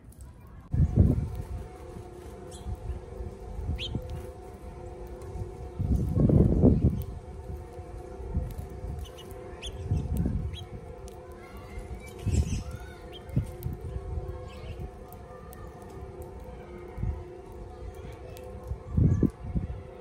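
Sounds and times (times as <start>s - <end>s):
low hum: 0.0s - 20.0s
small birds chirping: 2.4s - 3.1s, 3.7s - 5.3s, 8.5s - 16.0s.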